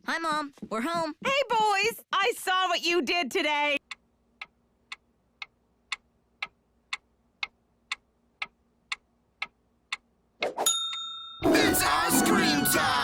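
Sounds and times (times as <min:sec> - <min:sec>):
clock ticking: 0:03.8 - 0:10.1.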